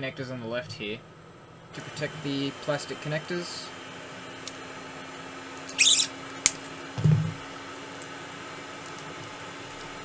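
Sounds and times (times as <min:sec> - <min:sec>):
tape pulled off roll: 0:05.7 - 0:07.3.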